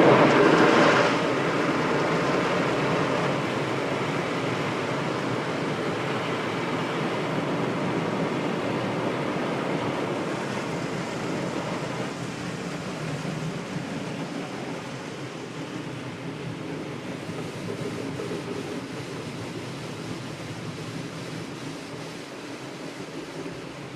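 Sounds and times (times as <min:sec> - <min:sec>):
car wash machinery: 0:00.0 - 0:23.9
water spray rushing: 0:10.0 - 0:23.9.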